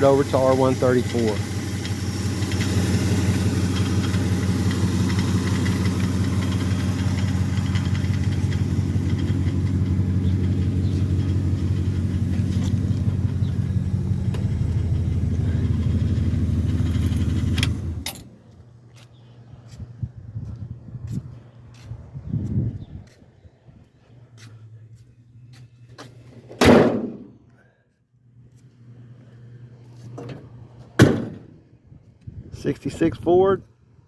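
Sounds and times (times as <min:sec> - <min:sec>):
engine idling: 0:00.0 - 0:18.2.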